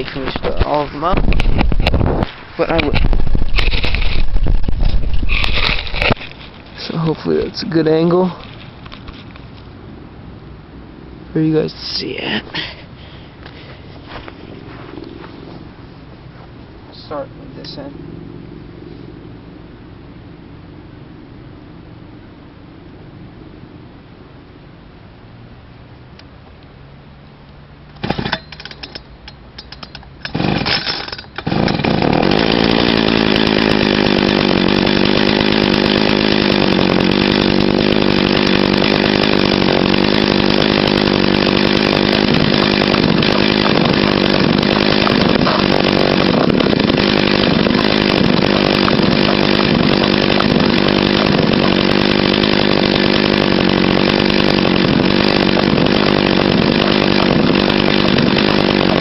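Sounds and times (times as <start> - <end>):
small engine sputtering and running: 0.0 - 9.7, 13.4 - 15.8, 27.9 - 59.0.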